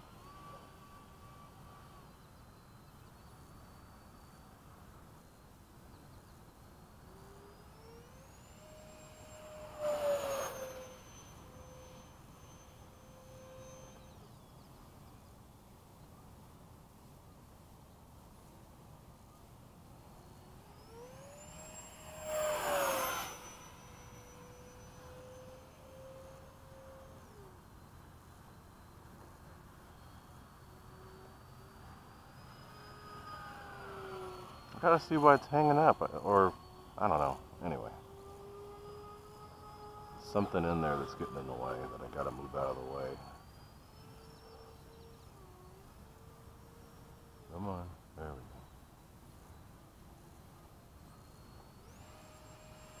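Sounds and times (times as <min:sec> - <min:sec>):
model jet fan whine: 0:00.0 - 0:53.0
jet passing with a rush: 0:09.2 - 0:11.6, 0:21.0 - 0:25.7.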